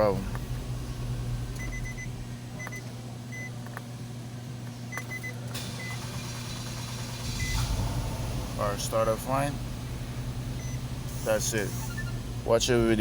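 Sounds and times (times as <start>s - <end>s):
car engine idling: 0.0s - 2.6s, 5.5s - 13.0s.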